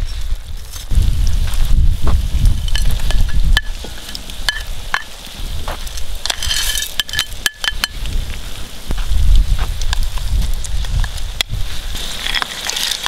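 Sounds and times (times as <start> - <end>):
loud hiss of food in hot fat: 0.0 - 13.0
meat and onions sizzling: 0.0 - 13.0
metal spoon scraping a board: 6.2 - 8.0
spoon clinking: 6.3 - 8.0.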